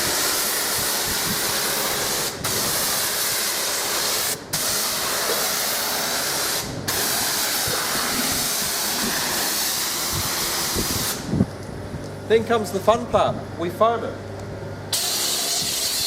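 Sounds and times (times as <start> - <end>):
water spraying onto a car: 0.0 - 11.3, 14.9 - 16.0.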